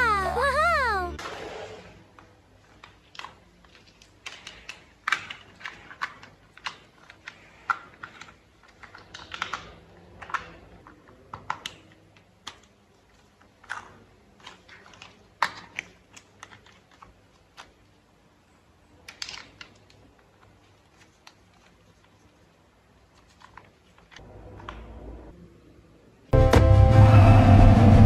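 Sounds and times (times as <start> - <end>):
plastic toy parts clicking: 2.7 - 18.0, 19.0 - 22.3.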